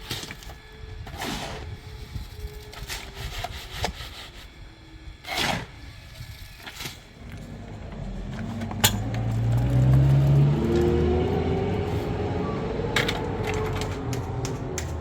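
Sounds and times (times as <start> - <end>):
engine speeding up: 7.1 - 15.0.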